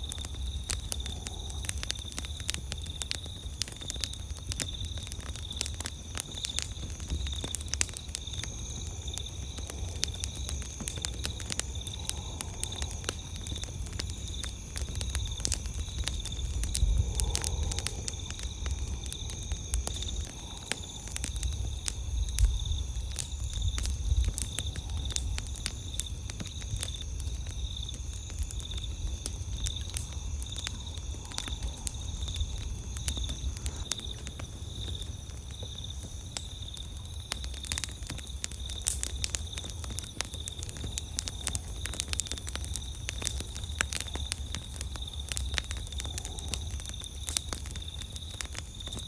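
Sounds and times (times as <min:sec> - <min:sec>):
campfire crackling: 0:00.0 - 0:49.0
insects chirring: 0:00.0 - 0:49.0.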